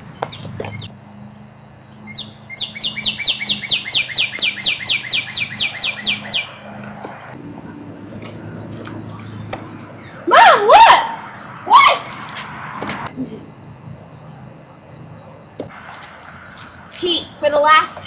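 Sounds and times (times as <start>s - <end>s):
bird chirping: 0.0s - 0.9s, 1.8s - 6.8s.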